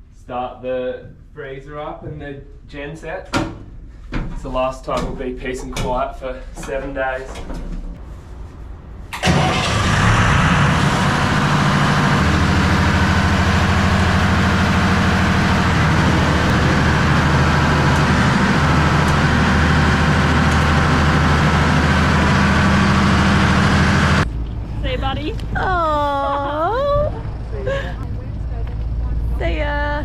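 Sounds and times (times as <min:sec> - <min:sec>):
deep low engine note: 0:05.9 - 0:30.0
generator engine running: 0:09.1 - 0:30.0.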